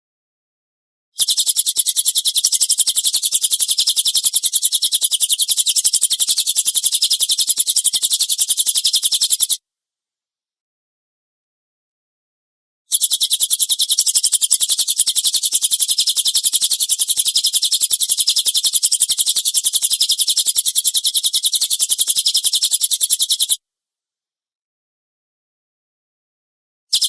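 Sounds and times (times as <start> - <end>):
songbird fast trill: 1.2 - 9.6, 12.9 - 23.6.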